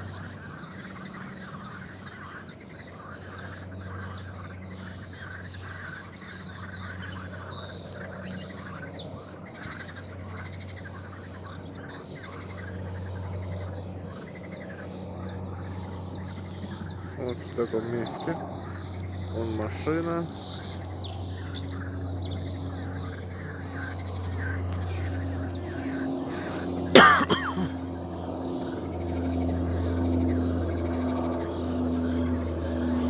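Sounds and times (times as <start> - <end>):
small birds chirping: 0.0 - 33.0
steady low hum: 14.9 - 33.0.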